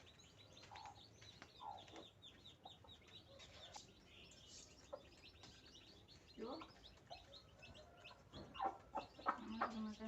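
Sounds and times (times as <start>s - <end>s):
chicks cheeping: 0.0s - 10.0s
hen clucking: 6.3s - 10.0s.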